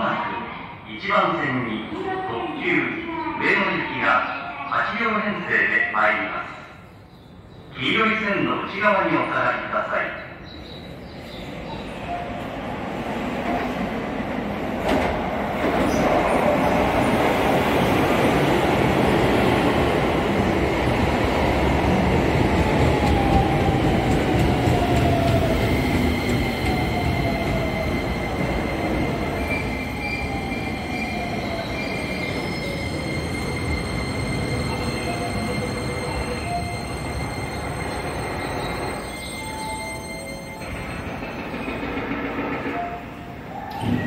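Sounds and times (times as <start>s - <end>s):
train wheels rumbling: 11.2s - 44.0s.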